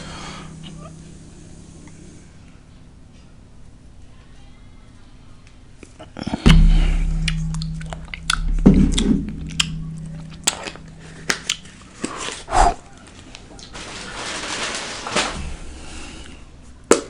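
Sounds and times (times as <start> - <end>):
low hum: 0.0 - 3.2, 6.5 - 12.5
heavy thump: 6.5 - 11.8.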